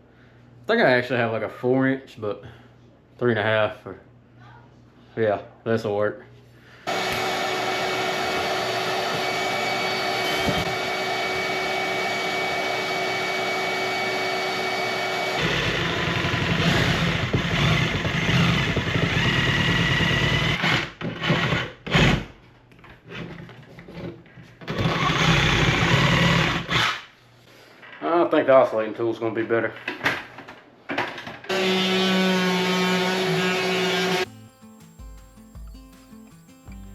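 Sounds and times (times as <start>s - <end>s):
power drill with hole saw: 6.9s - 22.2s, 24.7s - 27.1s, 31.5s - 34.3s.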